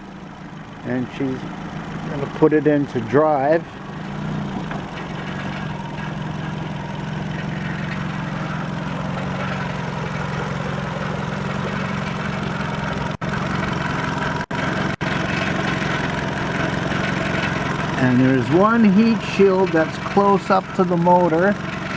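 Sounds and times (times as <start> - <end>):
car engine idling: 0.0 - 21.9
heat shield rattling: 1.4 - 13.1.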